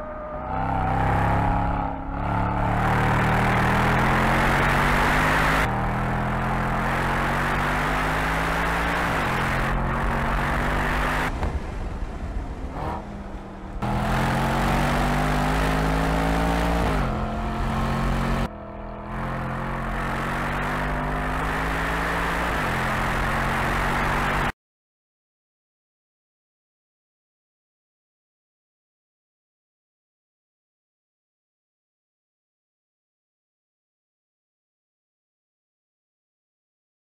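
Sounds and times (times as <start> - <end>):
car engine accelerating hard: 0.0 - 11.4, 12.2 - 24.5.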